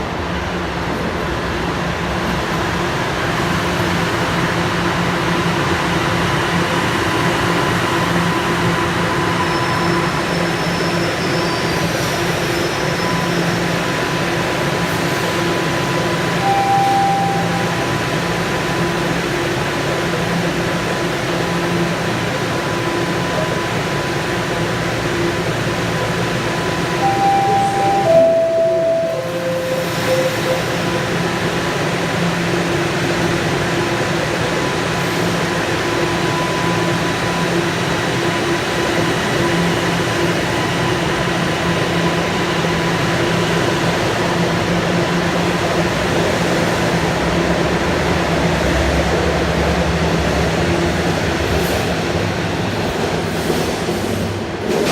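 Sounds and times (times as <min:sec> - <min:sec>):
subway train equipment humming: 0:00.0 - 0:54.9
descending three-note door chime: 0:16.4 - 0:18.0, 0:27.0 - 0:31.1
short tone: 0:16.4 - 0:18.3, 0:27.0 - 0:31.3.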